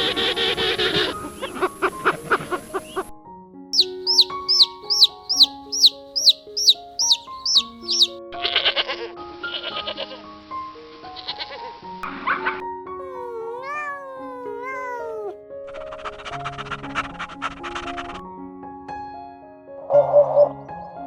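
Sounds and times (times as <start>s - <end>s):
light background music: 0.0s - 21.0s
chick peeping: 3.8s - 8.2s.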